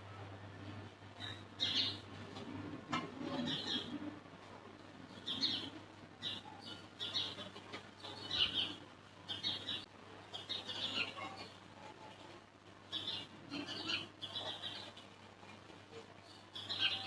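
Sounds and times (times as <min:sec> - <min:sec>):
faint steady hum: 0:00.0 - 0:17.0
bird chirping: 0:01.2 - 0:02.0, 0:05.1 - 0:11.5, 0:12.9 - 0:14.9, 0:16.2 - 0:17.0.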